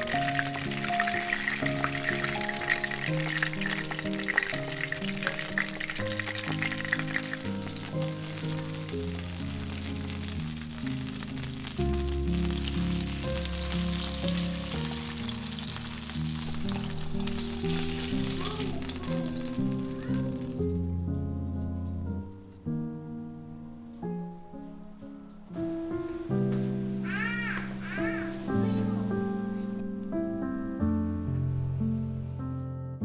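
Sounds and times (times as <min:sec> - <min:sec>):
food sizzling in frying oil: 0:00.0 - 0:20.9
background music: 0:00.0 - 0:33.0.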